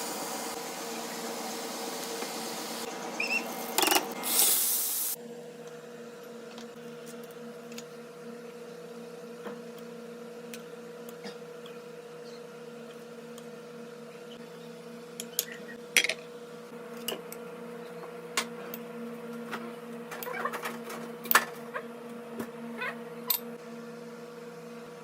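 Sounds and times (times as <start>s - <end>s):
machine hum: 0.0s - 5.2s.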